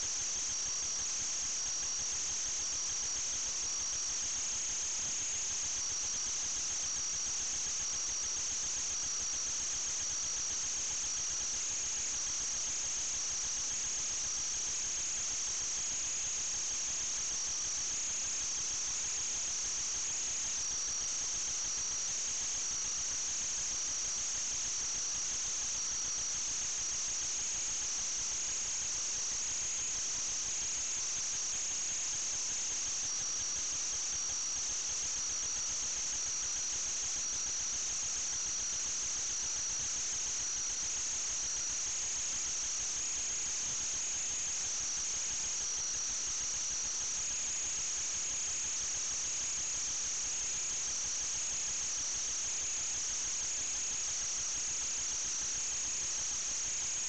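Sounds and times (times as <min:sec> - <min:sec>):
constant hiss: 0:00.0 - 0:57.0.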